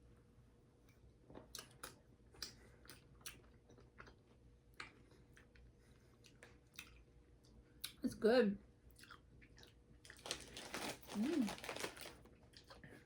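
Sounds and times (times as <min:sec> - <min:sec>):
faint candy chewing crunches: 0:00.8 - 0:08.0, 0:08.9 - 0:13.0.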